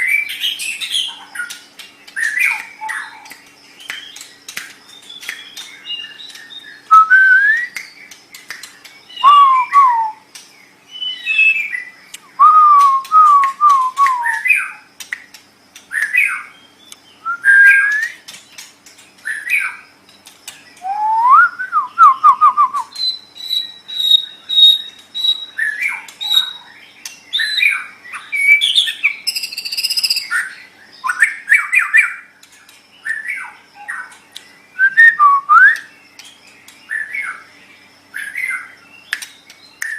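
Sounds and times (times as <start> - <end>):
buzzy bird notes: 0.0 - 39.9
bird singing whistled phrases: 4.9 - 8.2, 9.0 - 10.3, 10.9 - 14.8, 15.9 - 18.2, 20.8 - 26.6, 27.3 - 32.2, 34.7 - 36.0.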